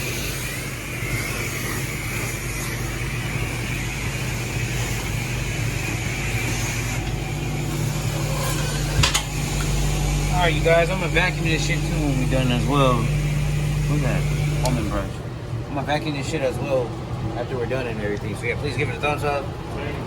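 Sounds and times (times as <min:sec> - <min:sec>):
water spraying hiss: 0:00.0 - 0:15.0
pressure washer pump hum: 0:00.0 - 0:20.0.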